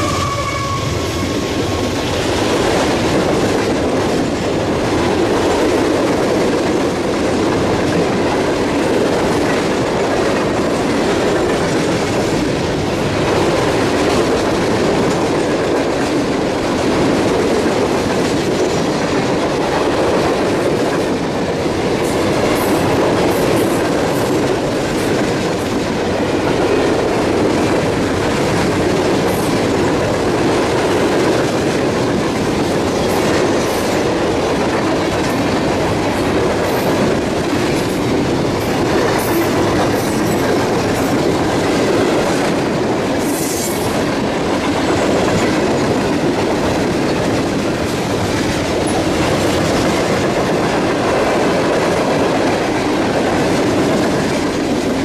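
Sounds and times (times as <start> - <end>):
high wheel squeals: 0.0 - 1.7
freight train rumbling past: 0.0 - 55.0
wheels clacking over rail joints: 1.4 - 55.0.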